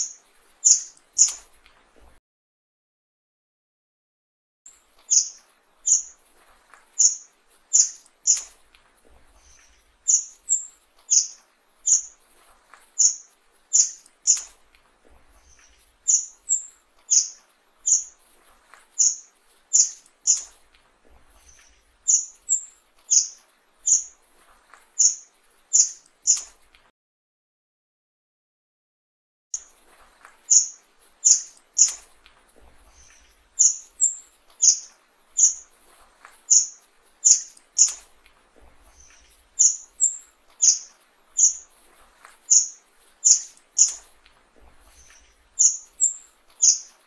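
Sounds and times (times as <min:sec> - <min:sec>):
bird high thin calls: 0:05.1 - 0:06.2, 0:30.5 - 0:32.0, 0:36.5 - 0:38.0, 0:39.0 - 0:41.7, 0:42.5 - 0:44.0, 0:45.0 - 0:47.0.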